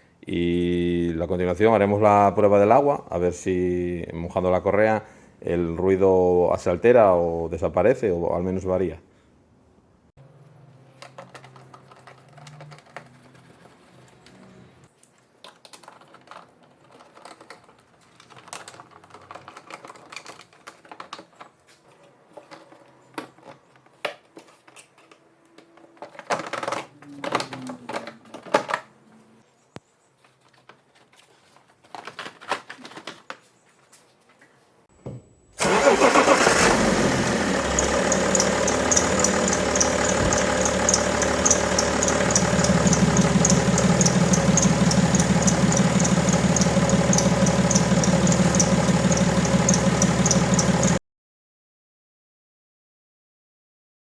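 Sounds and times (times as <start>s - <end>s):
diesel engine cranking and idling: 35.6s - 51.0s.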